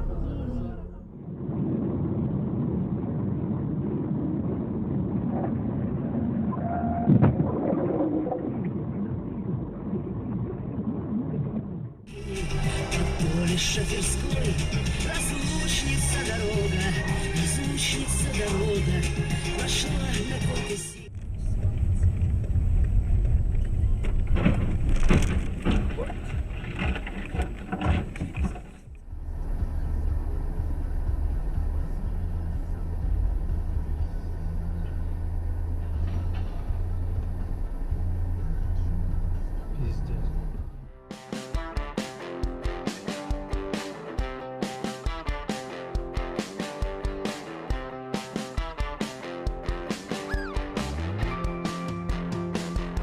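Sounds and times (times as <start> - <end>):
car driving noise: 12.2 - 40.8.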